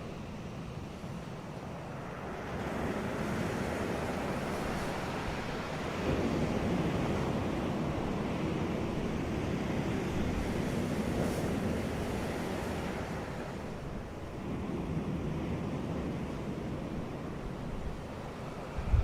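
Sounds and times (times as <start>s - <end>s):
sea waves breaking on beach: 0.0s - 19.0s.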